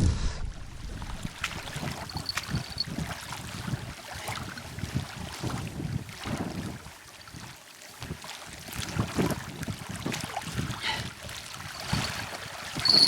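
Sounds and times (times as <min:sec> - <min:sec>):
waves lapping at a bank: 0:00.8 - 0:13.0
wind gusting over microphone: 0:11.7 - 0:13.0.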